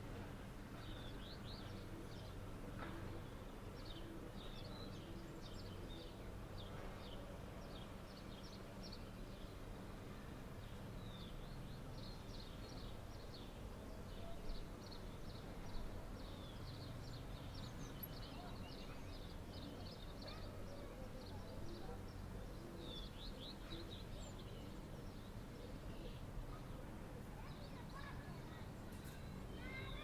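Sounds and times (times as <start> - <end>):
small birds chirping: 10.5 - 30.0.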